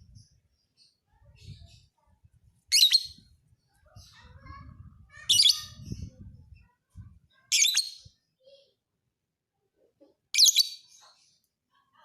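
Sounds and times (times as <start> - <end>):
quiet bird twitters: 0.0 - 8.7
bird shrill chirping bursts: 2.7 - 3.2.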